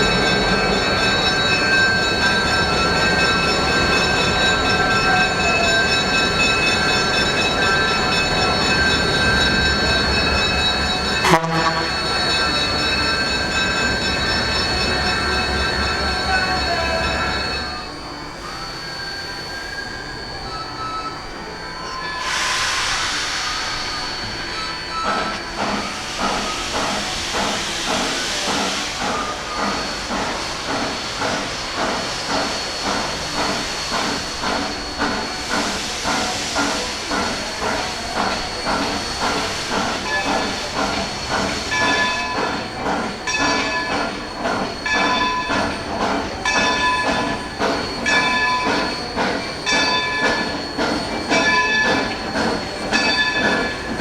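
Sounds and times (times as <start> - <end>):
steam hiss: 0.0 - 54.0
steam locomotive exhaust chuffs: 0.0 - 54.0.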